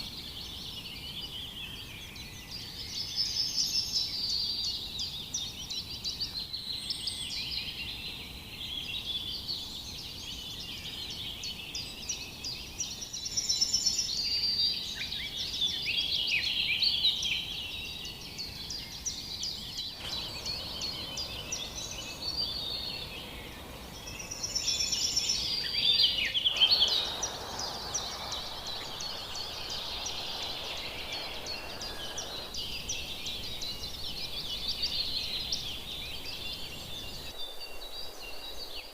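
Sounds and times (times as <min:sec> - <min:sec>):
birds chirping and singing: 0:10.3 - 0:38.9.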